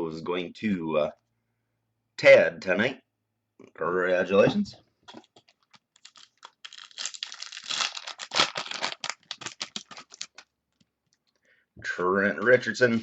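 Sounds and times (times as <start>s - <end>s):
wrapper being torn and crinkled: 5.6s - 10.8s.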